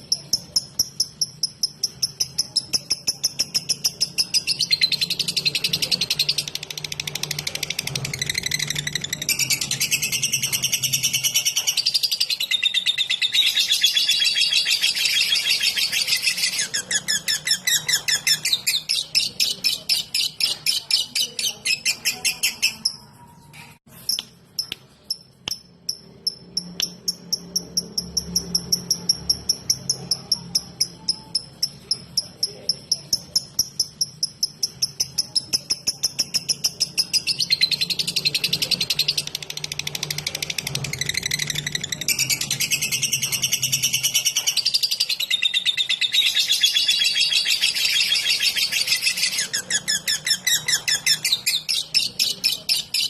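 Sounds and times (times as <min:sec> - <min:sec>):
lovebird chirping: 0:00.0 - 0:53.0.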